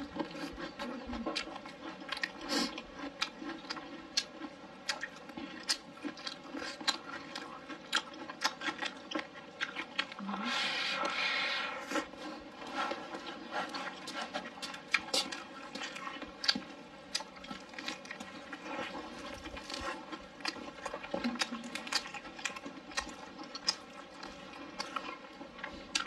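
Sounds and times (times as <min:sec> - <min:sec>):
person chewing and lip-smacking: 0:00.0 - 0:10.3, 0:12.0 - 0:26.0.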